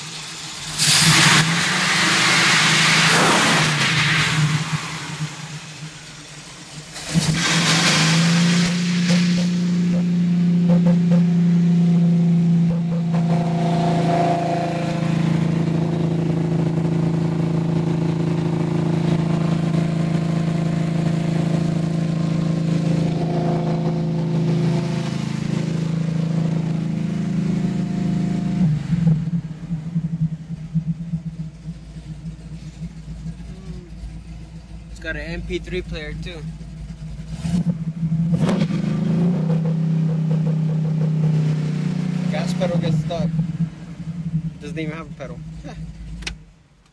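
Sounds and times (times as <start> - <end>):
car engine idling: 0.0 - 46.9
short rush of sound: 0.7 - 6.4, 7.0 - 10.3.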